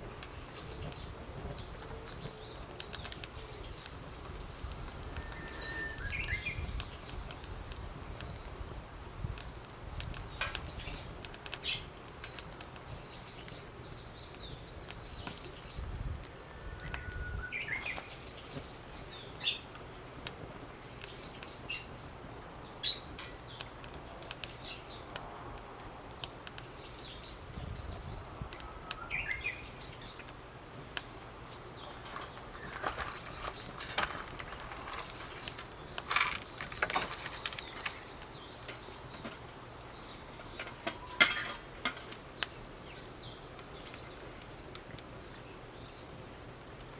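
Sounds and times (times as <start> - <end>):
sharp snaps and cracks: 0.0 - 46.9
bird whistle and rising chirp: 5.2 - 6.7, 16.6 - 18.0.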